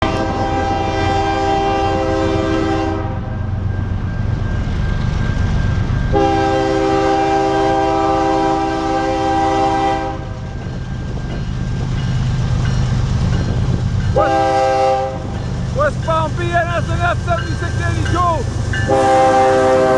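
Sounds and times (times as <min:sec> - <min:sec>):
locomotive air horn blasts: 0:00.0 - 0:03.3, 0:06.1 - 0:10.4, 0:14.2 - 0:15.3, 0:18.8 - 0:19.9
diesel engines rumbling: 0:00.1 - 0:19.9.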